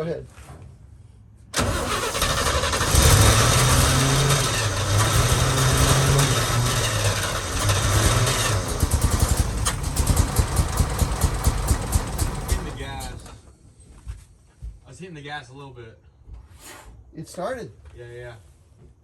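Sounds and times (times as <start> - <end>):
engine cranking and running: 1.6 - 13.5.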